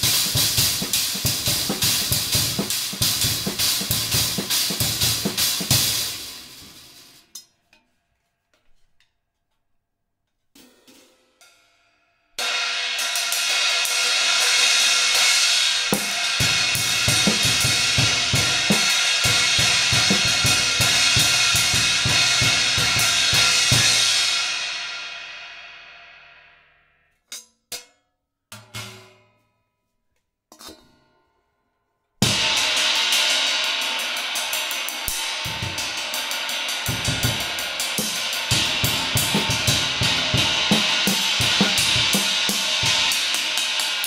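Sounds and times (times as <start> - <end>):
drum kit beats: 0.0 - 7.4, 12.4 - 25.6, 32.2 - 44.0
cymbal crash: 32.2 - 44.0.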